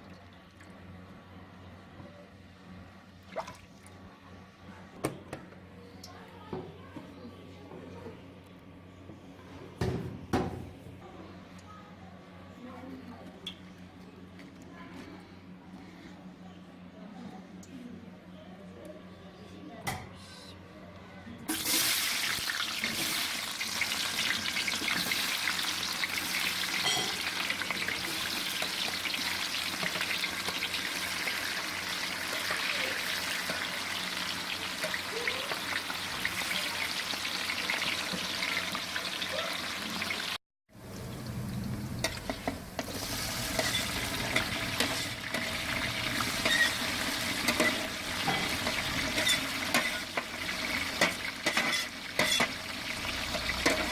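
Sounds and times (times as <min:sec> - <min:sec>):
food sizzling in hot oil: 0:21.5 - 0:53.9.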